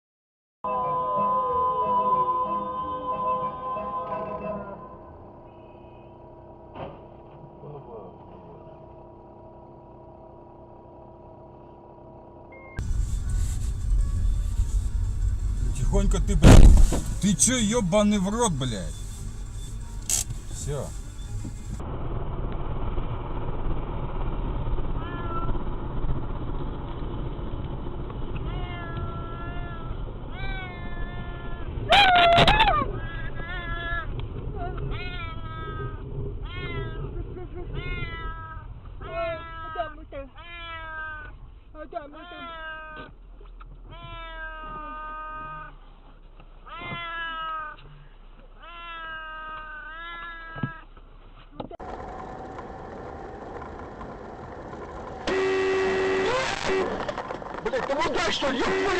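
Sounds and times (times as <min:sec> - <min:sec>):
car road rumble: 0:05.2 - 0:58.9
wavering high cries: 0:17.0 - 0:21.8
cat meowing: 0:25.0 - 0:25.6, 0:28.4 - 0:41.4, 0:42.2 - 0:43.1, 0:43.9 - 0:45.8, 0:46.7 - 0:47.8, 0:48.6 - 0:50.9.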